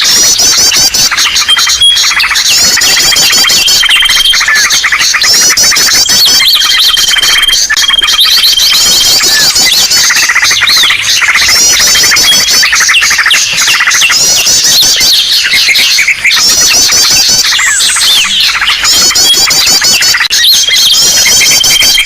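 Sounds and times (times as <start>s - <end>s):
chorus of small birds calling: 0.0s - 22.0s.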